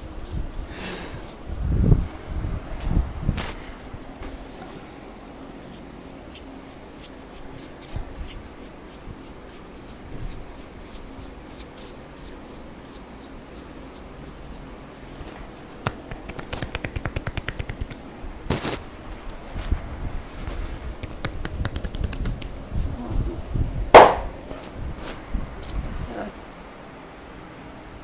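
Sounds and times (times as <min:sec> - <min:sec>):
hands slapping on skin: 0:15.2 - 0:18.8, 0:21.0 - 0:22.5, 0:24.0 - 0:24.4.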